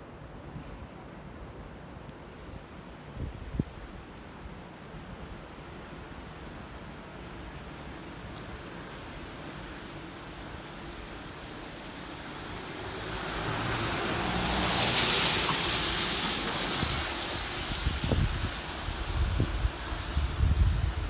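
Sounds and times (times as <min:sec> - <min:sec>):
wet street traffic noise: 0:00.1 - 0:21.0
vehicle driving past on wet road: 0:11.2 - 0:20.1.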